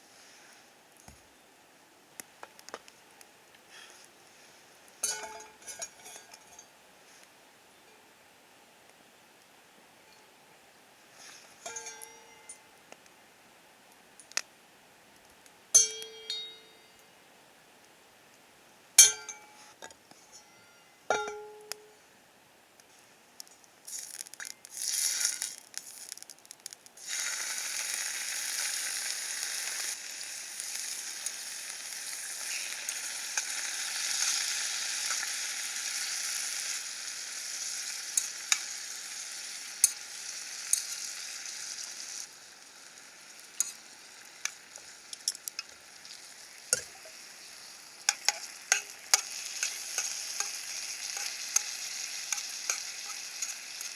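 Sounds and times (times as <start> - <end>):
ringing clinks: 15.8 - 17.0
eggs and bacon sizzling in pan: 23.9 - 53.9.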